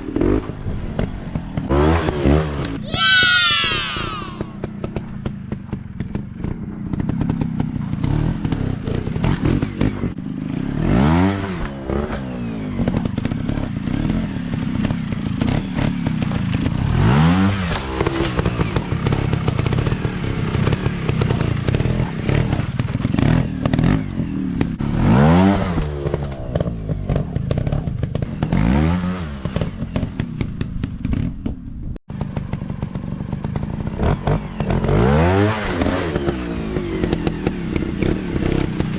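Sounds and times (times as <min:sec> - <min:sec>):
dirt bike engine revving: 0:06.1 - 0:30.4.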